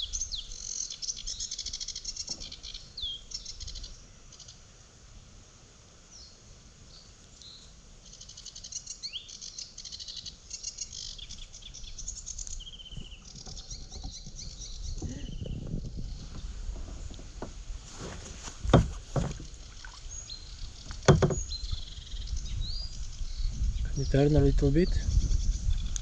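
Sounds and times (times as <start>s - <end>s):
songbirds singing: 0.0s - 4.7s, 6.1s - 17.6s, 18.6s - 26.0s
water sloshing: 13.4s - 21.8s.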